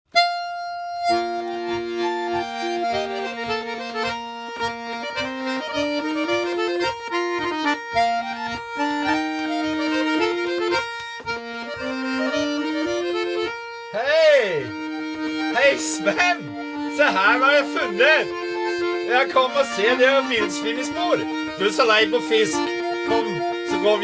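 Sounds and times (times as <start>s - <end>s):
accordion playing a tune: 0.1s - 24.0s.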